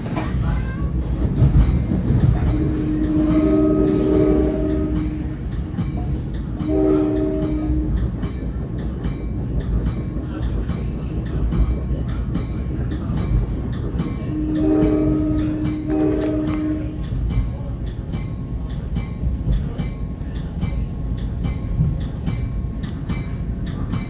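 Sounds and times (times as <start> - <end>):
train rumbling: 0.0 - 24.0
wheels clicking over rail joints: 0.0 - 24.0
train horn blasts: 2.5 - 5.4, 6.6 - 8.0, 14.2 - 17.1.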